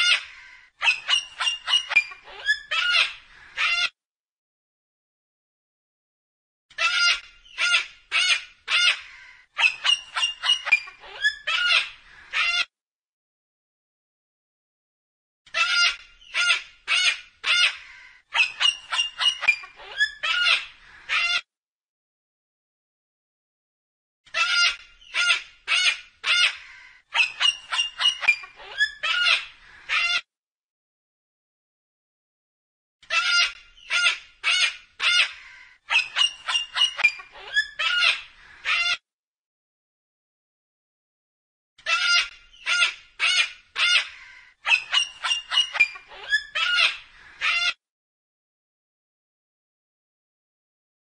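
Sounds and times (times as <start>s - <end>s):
cockatoo squawks: 0.0s - 3.9s, 6.7s - 12.7s, 15.5s - 21.4s, 24.3s - 30.3s, 33.0s - 39.0s, 41.8s - 47.8s.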